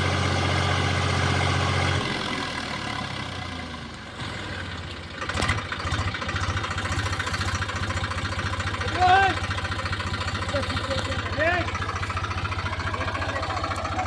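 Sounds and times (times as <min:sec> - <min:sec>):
tractor diesel engine idling: 0:00.0 - 0:14.0.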